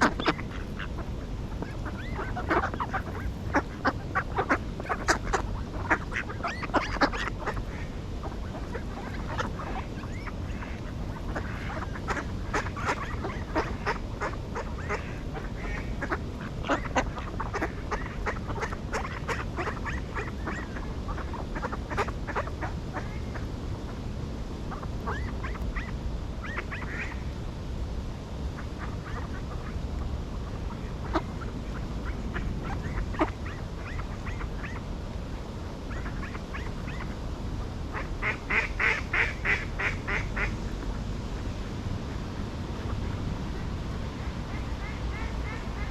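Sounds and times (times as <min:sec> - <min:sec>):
ducks quacking: 0:00.0 - 0:23.4, 0:30.5 - 0:34.8, 0:37.9 - 0:40.6, 0:44.4 - 0:45.9
steady low rumble: 0:00.0 - 0:45.9.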